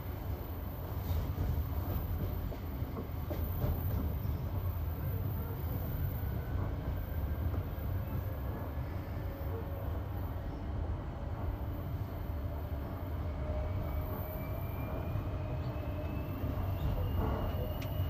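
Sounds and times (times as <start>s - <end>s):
train wheels rumbling on rails: 0.0s - 18.0s
faint clacks at rail joints: 1.0s - 4.9s, 5.9s - 8.6s, 15.6s - 18.0s.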